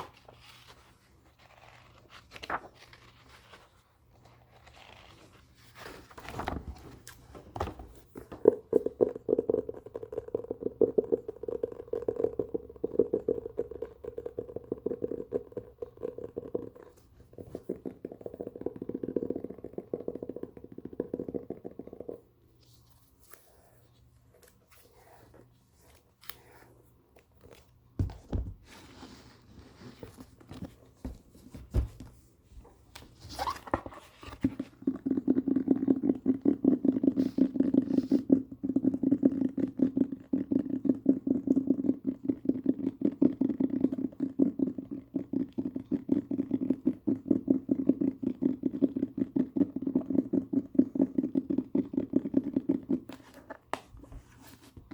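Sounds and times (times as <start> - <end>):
book crinkling and clicking: 1.5 - 3.7
fast tapping on book: 28.0 - 28.6
book dull thumps: 28.0 - 28.9, 30.1 - 34.6.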